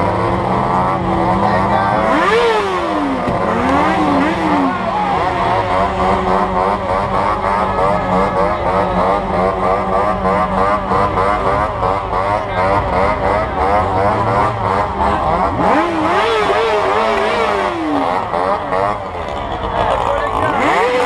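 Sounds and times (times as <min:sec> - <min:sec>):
motorcycle engine revving: 0:00.0 - 0:21.0
motorcycle engines running: 0:00.0 - 0:21.0.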